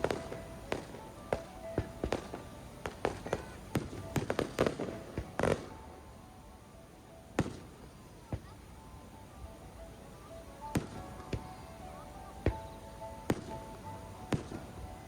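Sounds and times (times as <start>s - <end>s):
fireworks bursting with sharp bangs: 0.0s - 6.0s, 7.3s - 8.6s, 10.6s - 11.7s, 12.4s - 15.0s.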